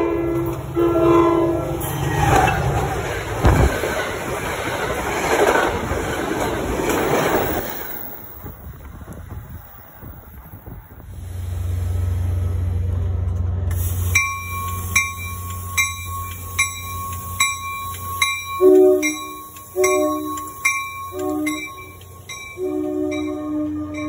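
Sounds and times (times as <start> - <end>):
train coaches rumbling: 0.0 - 24.0
lower-pitched ringing strokes: 14.0 - 24.0
rapid clanging bell: 14.2 - 24.0.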